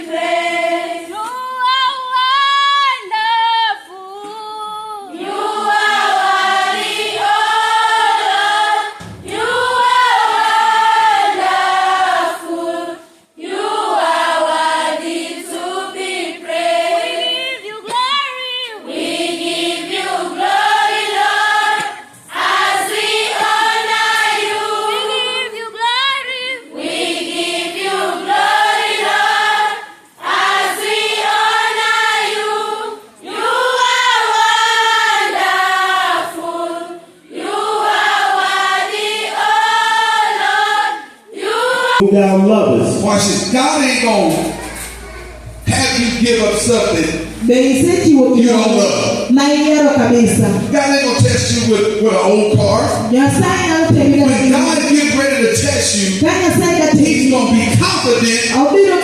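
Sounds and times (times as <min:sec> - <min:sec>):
choir singing: 0:00.0 - 0:03.4, 0:05.0 - 0:17.9, 0:18.7 - 0:56.0.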